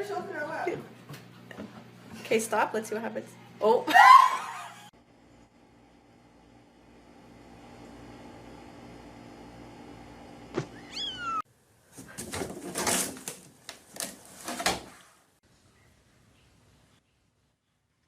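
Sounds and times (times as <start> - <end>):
cat meowing: 10.7 - 11.4.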